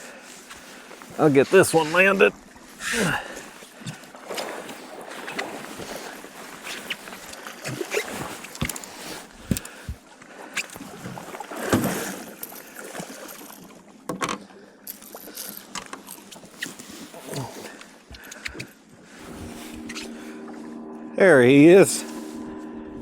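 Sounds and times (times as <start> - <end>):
waves lapping against boat hull: 0.0 - 20.3
knocks and clatter aboard boat: 3.4 - 16.2.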